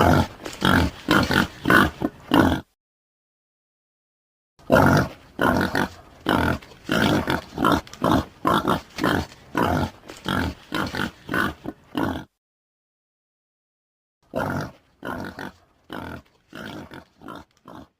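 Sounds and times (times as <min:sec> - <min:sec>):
boar grunting: 0:00.0 - 0:02.7, 0:04.6 - 0:12.4, 0:14.3 - 0:17.9.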